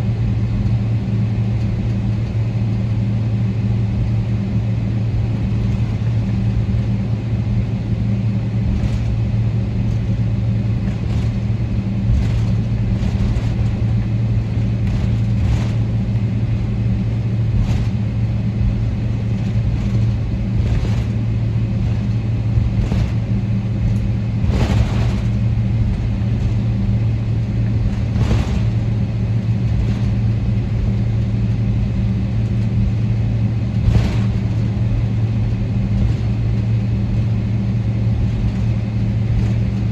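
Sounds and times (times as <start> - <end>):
aircraft cabin hum: 0.0 - 39.9
knocks and rattles: 10.8 - 31.0.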